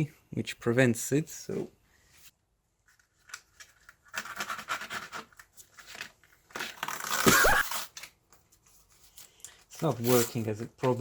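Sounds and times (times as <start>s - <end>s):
packing tape scratching and tearing: 3.0s - 11.0s.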